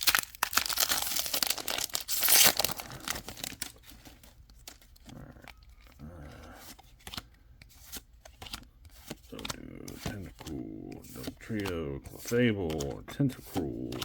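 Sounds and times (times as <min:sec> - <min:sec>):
foil wrapper crinkling and tearing: 0:00.0 - 0:05.1
cards rustling: 0:00.0 - 0:14.0.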